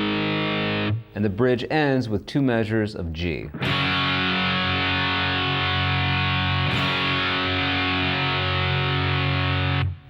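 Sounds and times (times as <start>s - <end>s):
distorted electric guitar chord: 0.0s - 1.1s, 3.6s - 10.0s.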